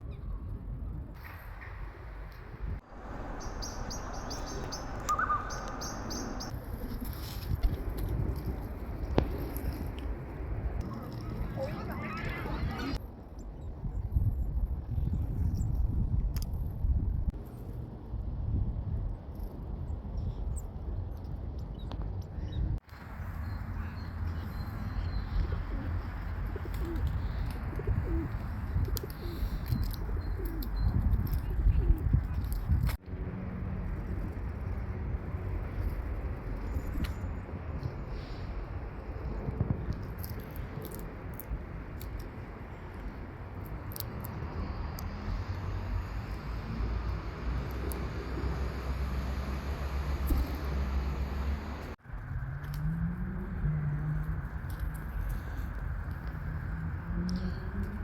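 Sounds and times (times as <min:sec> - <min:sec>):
small birds chirping: 0:03.3 - 0:06.6.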